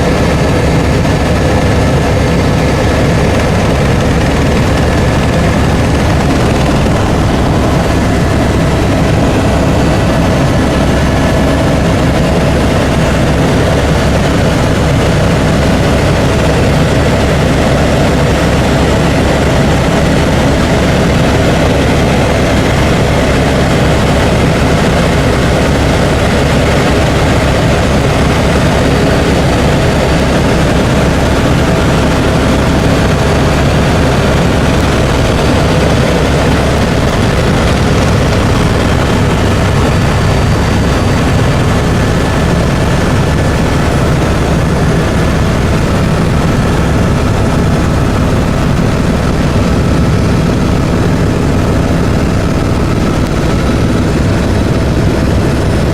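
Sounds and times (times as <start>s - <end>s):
helicopter rotor and engine drone: 0.0s - 55.9s.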